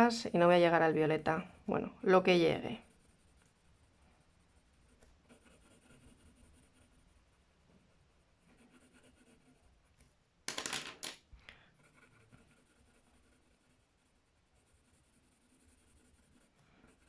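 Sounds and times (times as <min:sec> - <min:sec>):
colouring strokes on paper: 0:00.4 - 0:10.0, 0:11.6 - 0:17.0
clatter of small hard objects: 0:10.5 - 0:11.2.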